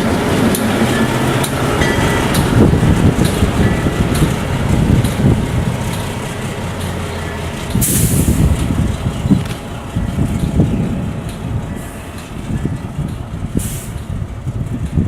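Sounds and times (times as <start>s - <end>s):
locomotive engine rumbling: 0.0s - 15.0s.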